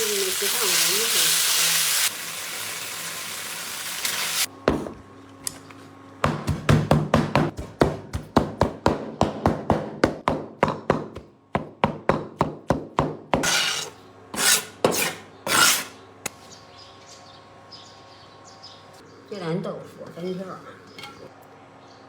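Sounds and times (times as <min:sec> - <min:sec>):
knife chopping on wooden board: 0:06.2 - 0:15.9
knife scraping across board: 0:13.4 - 0:16.0.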